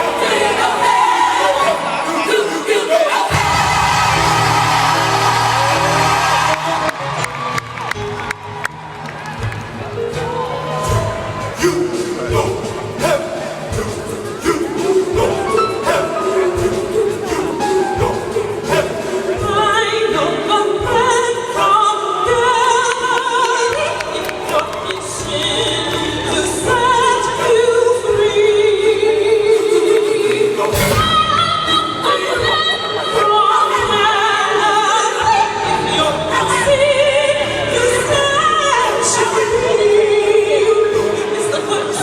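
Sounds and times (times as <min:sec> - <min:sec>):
gospel choir singing: 0:00.0 - 0:08.3, 0:09.9 - 0:42.0
lead singer: 0:00.0 - 0:08.4, 0:10.0 - 0:42.0
band accompaniment: 0:03.3 - 0:42.0
live band drum beat: 0:10.8 - 0:19.8, 0:30.7 - 0:31.6.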